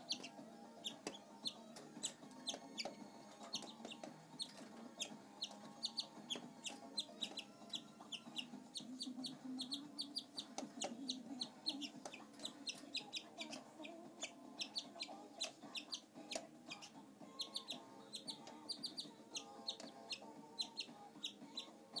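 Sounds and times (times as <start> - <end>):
canary chirping: 0.0 - 22.0.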